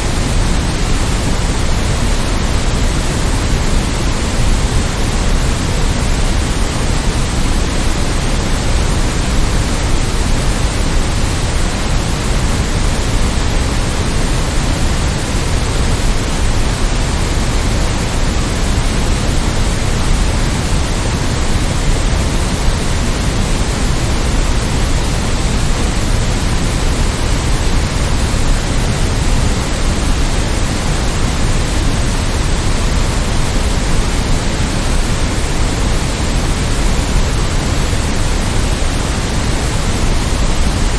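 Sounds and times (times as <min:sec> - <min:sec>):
white noise hiss: 0:00.0 - 0:40.9.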